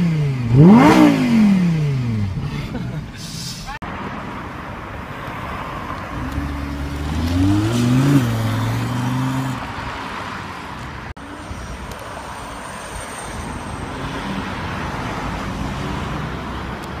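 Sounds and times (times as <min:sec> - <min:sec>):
car engine revving: 0:00.0 - 0:02.8, 0:06.0 - 0:09.8
street traffic noise: 0:00.0 - 0:17.0.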